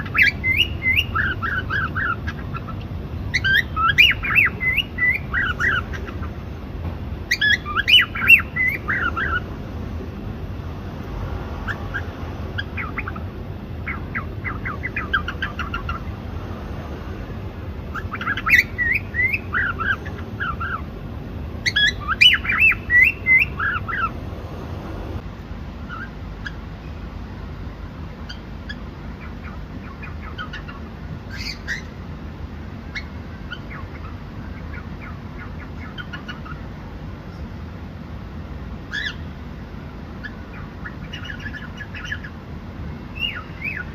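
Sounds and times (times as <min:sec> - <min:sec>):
cockatiel chirping: 0:00.0 - 0:06.4, 0:07.3 - 0:09.5, 0:11.6 - 0:16.1, 0:17.9 - 0:20.8, 0:21.6 - 0:24.2, 0:25.9 - 0:26.6, 0:28.3 - 0:32.0, 0:32.9 - 0:36.6, 0:38.9 - 0:39.2, 0:40.2 - 0:42.4, 0:43.2 - 0:43.9
low background hum: 0:00.0 - 0:43.9.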